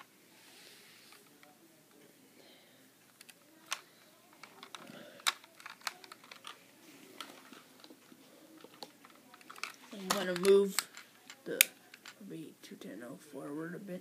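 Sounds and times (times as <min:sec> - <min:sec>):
plastic model train parts clicking: 0:03.1 - 0:03.8, 0:04.4 - 0:06.6, 0:08.6 - 0:12.2.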